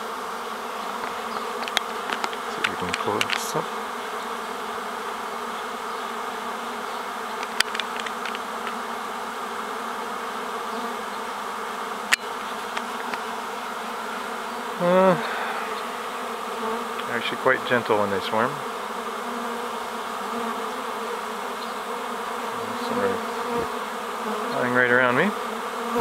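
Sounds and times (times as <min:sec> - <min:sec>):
bees buzzing: 0:00.0 - 0:26.0
sharp clicks: 0:00.9 - 0:03.5, 0:07.4 - 0:08.8.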